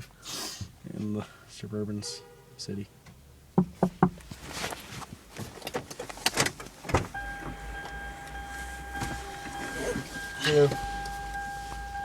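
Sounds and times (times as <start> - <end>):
car door clicks and knocks: 3.6 - 4.3, 5.7 - 7.6.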